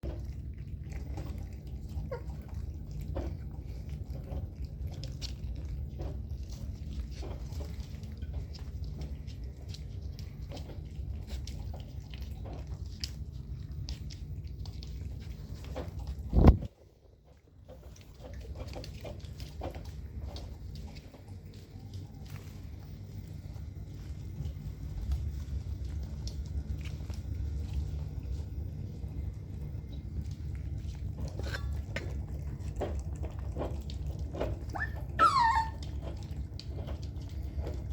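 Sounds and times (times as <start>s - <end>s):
puppies chewing and biting: 0.0s - 37.9s
puppy whining: 0.9s - 3.5s, 31.2s - 37.0s
low hum: 17.8s - 37.9s
puppy squeaks: 34.6s - 36.0s.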